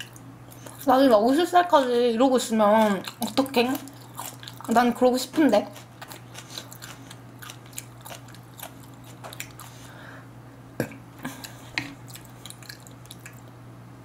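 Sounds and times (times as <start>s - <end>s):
steady low hum: 0.0s - 14.0s
wet mouth clicks and smacks: 10.8s - 13.6s.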